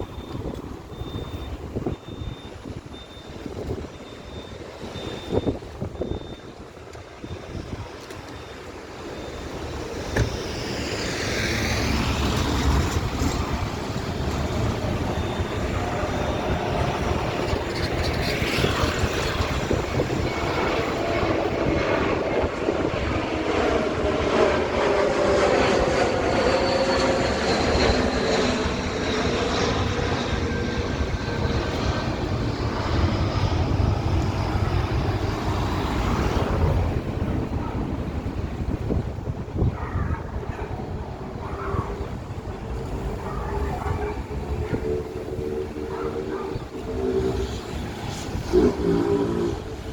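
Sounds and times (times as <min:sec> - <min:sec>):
jet airliner passing low: 0:00.0 - 0:49.9.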